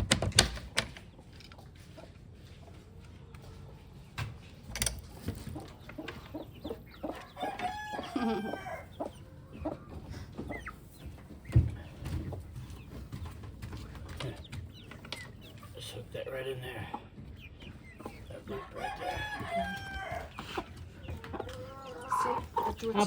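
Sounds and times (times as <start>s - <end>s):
chickens clucking: 1.0s - 23.0s
rooster crowing: 7.1s - 9.0s, 18.6s - 20.4s.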